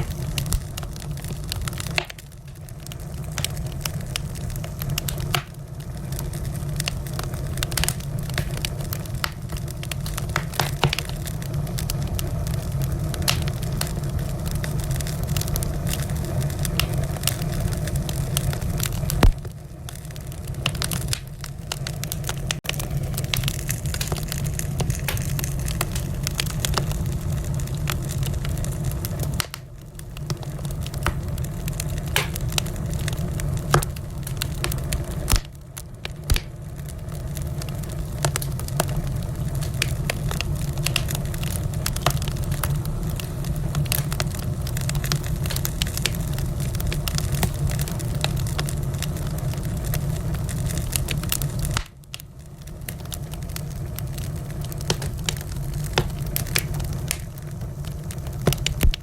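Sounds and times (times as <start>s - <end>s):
low rumble of burning logs: 0.0s - 59.0s
wood fire popping and snapping: 0.0s - 59.0s.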